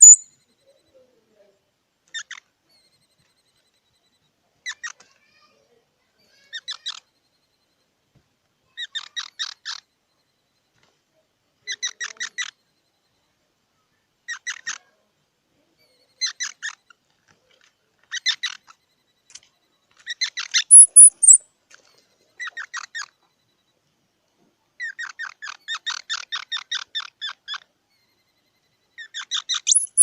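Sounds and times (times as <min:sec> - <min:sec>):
squirrel chirping: 0:00.0 - 0:00.8, 0:11.7 - 0:12.6, 0:14.3 - 0:14.9, 0:18.0 - 0:21.4, 0:24.8 - 0:30.0.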